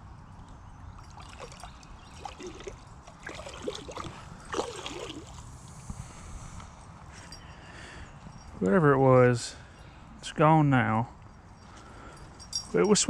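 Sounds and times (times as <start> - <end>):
creek water trickling and gurgling: 0.6 - 6.0.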